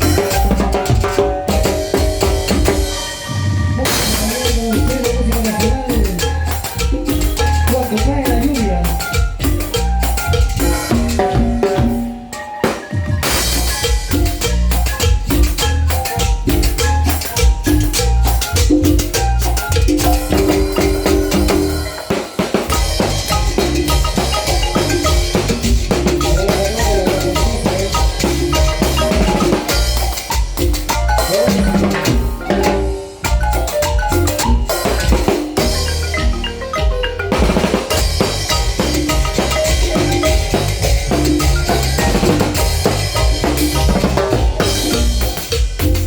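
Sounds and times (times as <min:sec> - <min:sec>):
latin dance-band music: 0:00.0 - 0:46.0.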